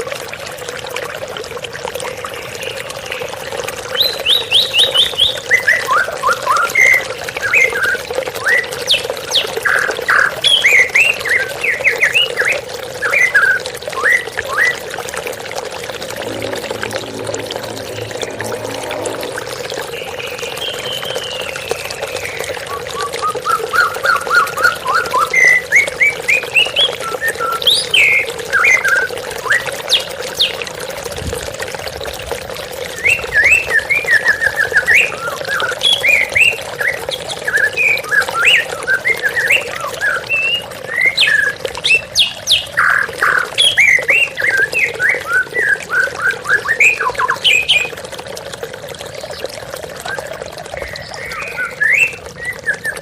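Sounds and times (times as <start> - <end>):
running water rushing: 0.0 - 53.0
bird singing whistled notes: 50.8 - 53.0.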